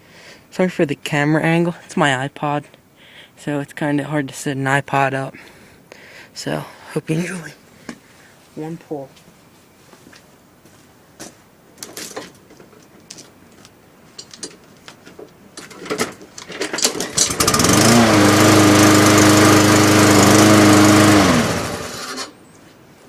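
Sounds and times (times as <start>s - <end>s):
recoil starter clicks and rattles: 15.6s - 22.3s
lawnmower engine running: 15.9s - 22.4s.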